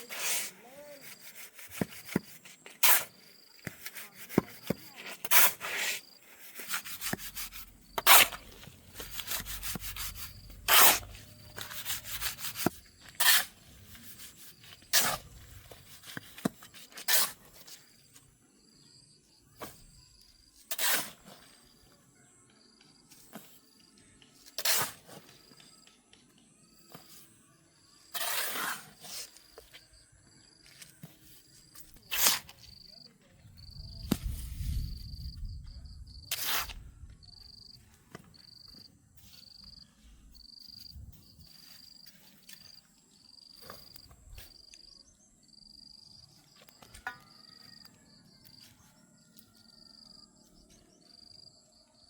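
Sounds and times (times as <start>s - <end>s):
insect chirping: 6.0s - 13.1s, 29.3s - 34.1s, 34.7s - 36.4s, 37.2s - 52.0s.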